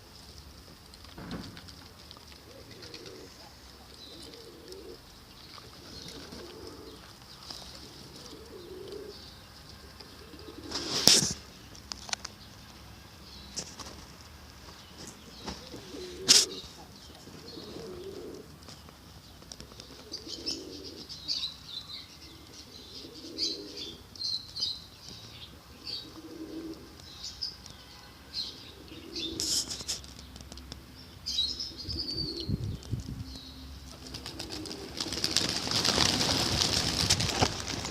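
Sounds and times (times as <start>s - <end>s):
small birds chirping: 1.7s - 37.9s
pigeons cooing: 1.9s - 11.3s, 15.3s - 18.7s, 19.6s - 21.5s, 22.2s - 24.1s, 25.8s - 27.0s, 28.5s - 30.0s, 31.5s - 32.8s, 33.8s - 37.9s
wings flapping: 33.9s - 37.9s.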